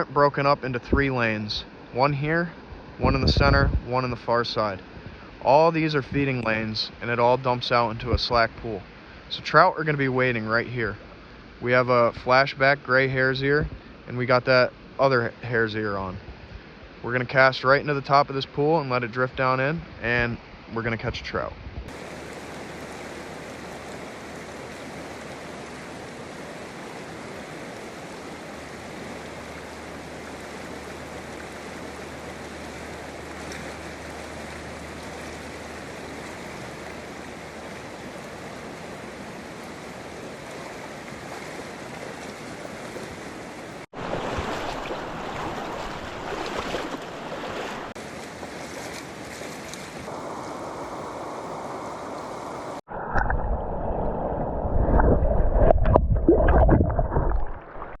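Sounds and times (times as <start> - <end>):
stream rushing into pool: 21.9 - 58.0.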